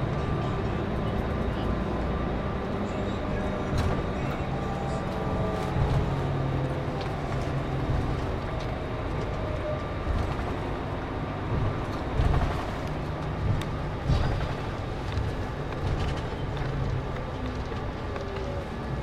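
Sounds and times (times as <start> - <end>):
coach engine and road drone: 0.0 - 19.0.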